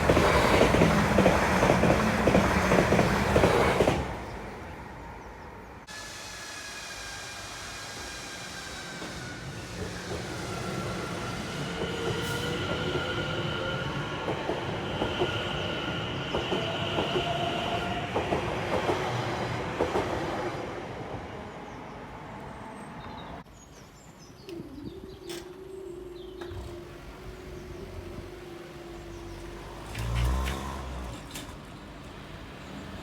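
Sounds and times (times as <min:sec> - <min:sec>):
train wheels squealing: 0:05.9 - 0:18.4
wheels clicking over rail joints: 0:29.8 - 0:32.2.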